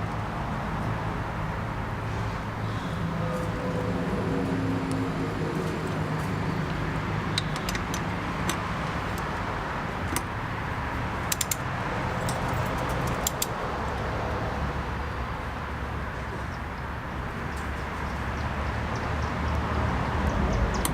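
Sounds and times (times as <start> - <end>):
hand tools clicking on metal: 7.3 - 9.4, 11.2 - 13.6.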